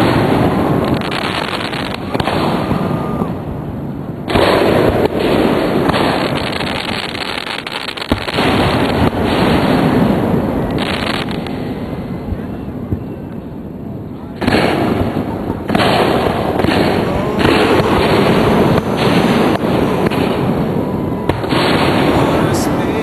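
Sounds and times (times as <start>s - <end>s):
firework crackling: 0.0s - 23.0s
firework shells bursting: 14.4s - 23.0s.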